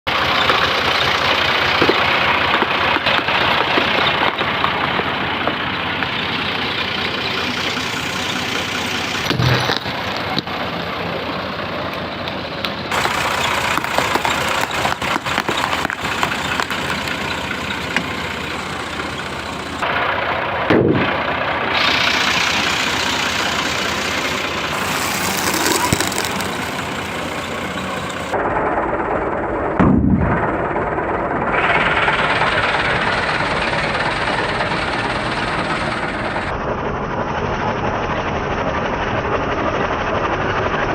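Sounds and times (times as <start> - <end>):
tractor engine running: 0.1 - 29.6, 30.4 - 36.5.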